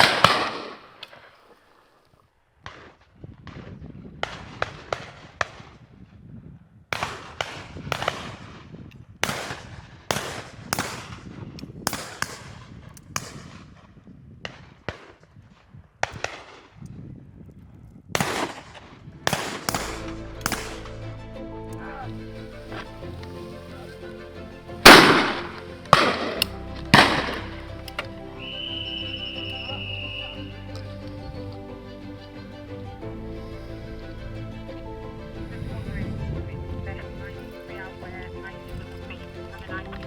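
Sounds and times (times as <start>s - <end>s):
shotguns firing: 0.0s - 1.3s, 7.0s - 13.8s, 18.2s - 21.0s, 24.8s - 28.1s.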